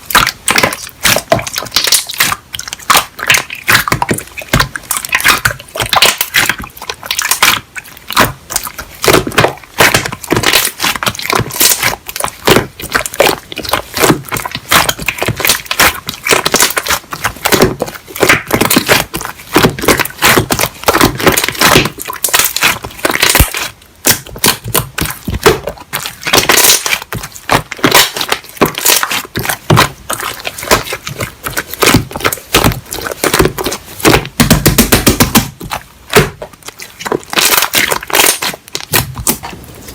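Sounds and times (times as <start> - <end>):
slime squished by hand: 0.0 - 39.9.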